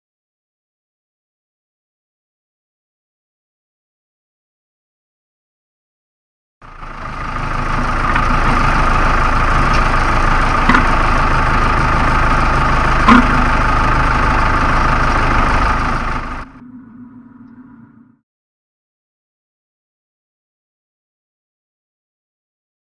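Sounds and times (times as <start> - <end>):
tractor engine mowing grass: 6.6 - 16.6.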